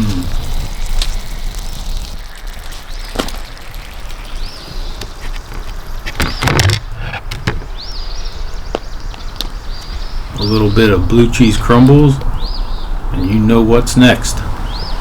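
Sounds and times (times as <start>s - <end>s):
bird chirping: 0.0s - 15.0s
low outdoor rumble: 0.0s - 15.0s
knocks and handling clatter: 5.0s - 7.8s.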